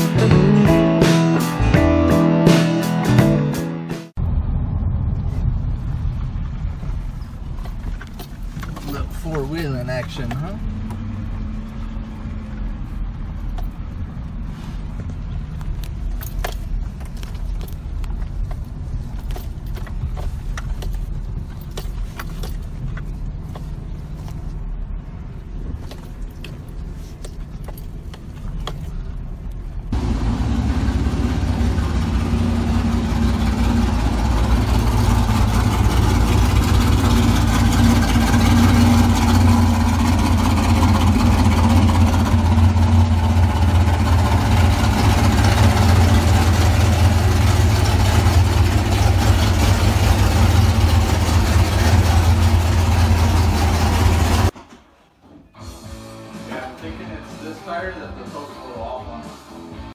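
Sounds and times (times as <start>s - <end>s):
engine and road rumble: 0.0s - 55.0s
engine-like running with low hum: 4.2s - 54.5s
clicks and rattles over bumps: 7.2s - 10.5s, 15.6s - 24.4s.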